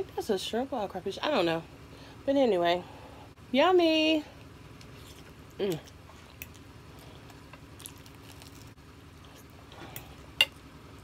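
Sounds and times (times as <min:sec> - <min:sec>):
soft wet chewing: 0:04.8 - 0:10.4.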